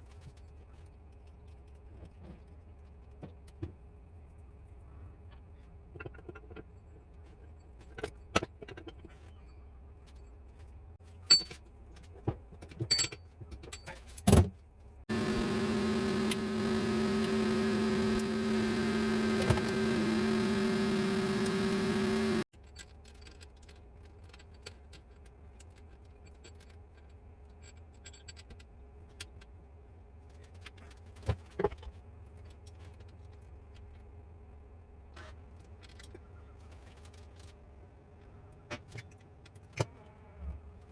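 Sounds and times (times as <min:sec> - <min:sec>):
workshop machine humming: 0:15.1 - 0:22.5.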